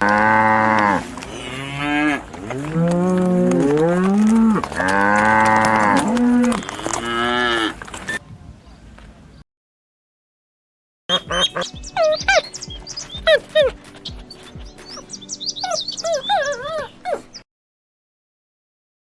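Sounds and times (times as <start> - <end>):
background music: 11.1 - 17.4
high gliding animal calls: 11.1 - 17.4.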